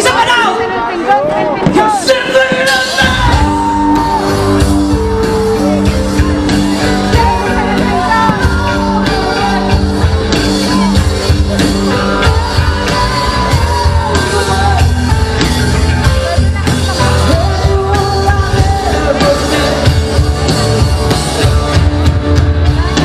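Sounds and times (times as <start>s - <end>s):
loud rock music with singing: 0.0s - 23.0s.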